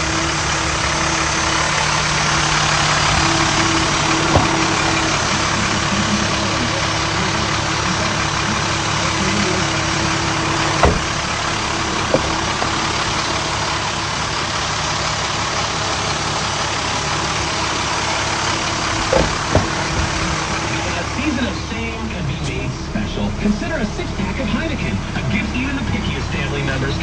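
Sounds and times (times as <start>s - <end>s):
diesel truck engine idling: 0.0s - 27.0s.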